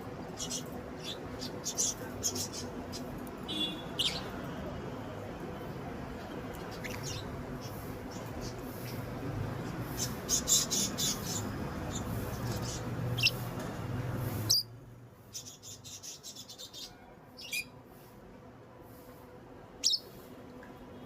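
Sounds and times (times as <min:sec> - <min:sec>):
low background hum: 0:00.0 - 0:21.0
lovebirds chirping and squeaking: 0:00.4 - 0:04.4, 0:06.5 - 0:13.6, 0:14.2 - 0:14.7, 0:15.3 - 0:17.7, 0:19.8 - 0:20.1.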